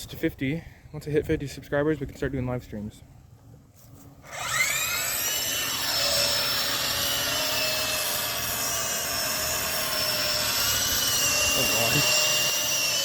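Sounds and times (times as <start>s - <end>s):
rc helicopter rotor whine: 4.2s - 13.0s.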